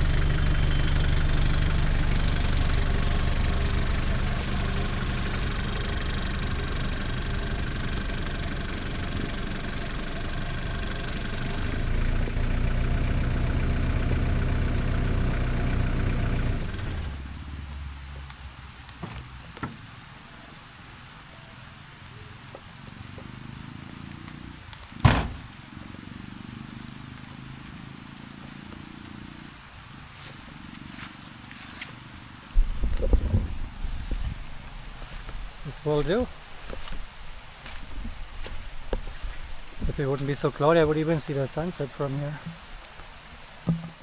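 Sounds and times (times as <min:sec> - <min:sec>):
van engine running: 0:00.0 - 0:18.4, 0:24.6 - 0:25.8
sharp bang: 0:25.0 - 0:25.5.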